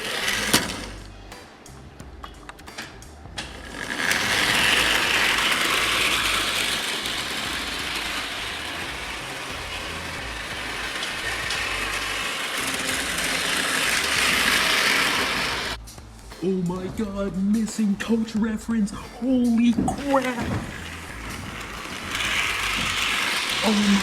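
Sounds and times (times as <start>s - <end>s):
toy train whirring rattle: 0.0s - 1.1s, 3.4s - 15.8s, 19.5s - 24.0s.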